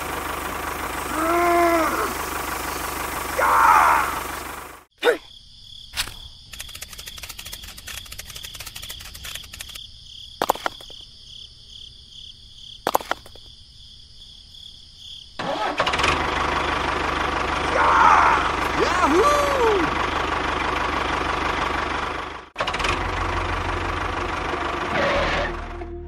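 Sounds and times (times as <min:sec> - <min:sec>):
motor running: 0:00.0 - 0:04.9, 0:15.8 - 0:25.7
sharp clicks: 0:05.9 - 0:09.8, 0:10.4 - 0:11.0, 0:12.9 - 0:13.5
fast ticking: 0:06.5 - 0:09.8.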